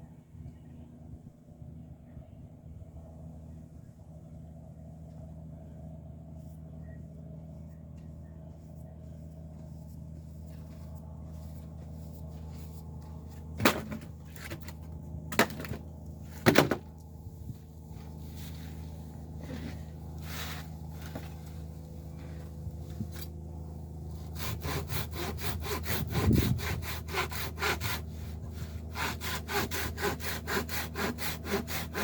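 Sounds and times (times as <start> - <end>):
steady low hum: 0.0 - 32.0
sharp wood clatters: 13.6 - 15.8.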